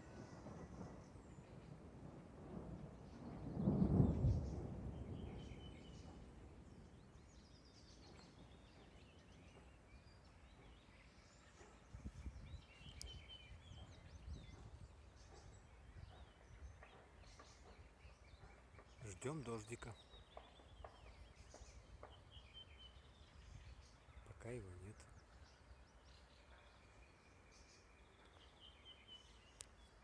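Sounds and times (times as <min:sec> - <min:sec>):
thunder rumbling low: 0:00.0 - 0:10.9
small birds chirping: 0:02.5 - 0:30.0.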